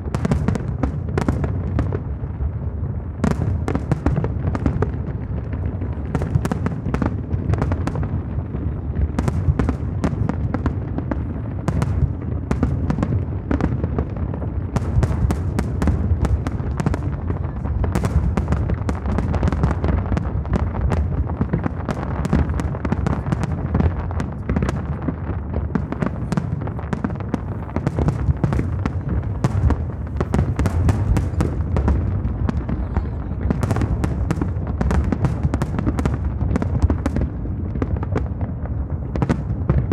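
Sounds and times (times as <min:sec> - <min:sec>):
fireworks booming: 0:00.0 - 0:39.9
fireworks crackling: 0:00.0 - 0:39.9.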